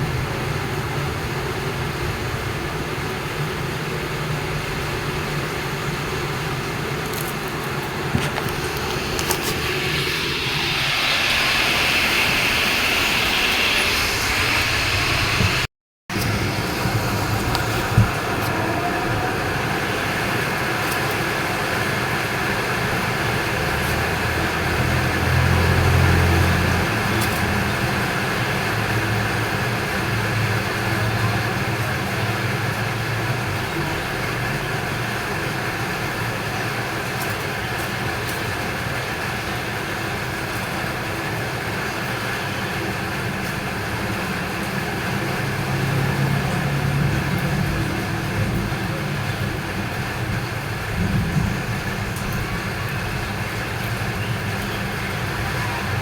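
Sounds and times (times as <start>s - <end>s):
traffic noise: 0.0s - 56.0s
passing vehicle hum: 4.8s - 33.8s, 40.2s - 56.0s.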